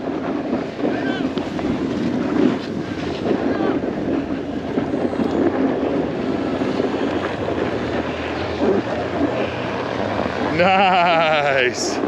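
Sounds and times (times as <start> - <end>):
snowboard sliding over snow: 0.0 - 12.0
wind on microphone: 0.0 - 12.0.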